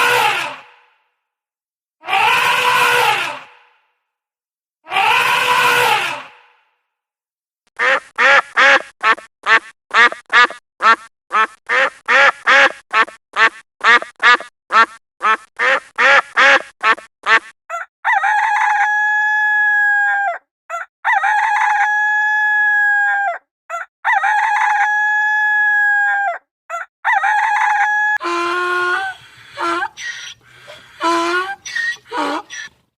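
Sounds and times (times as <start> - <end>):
farm fowl calls: 28.2 - 32.8.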